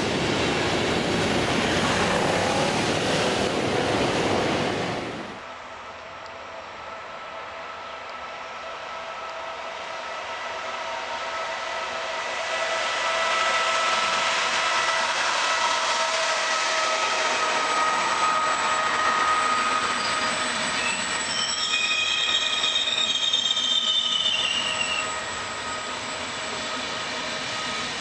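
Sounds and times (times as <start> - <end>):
train passing close by: 0.0 - 28.0
high-pitched wheel squeal: 13.3 - 27.8.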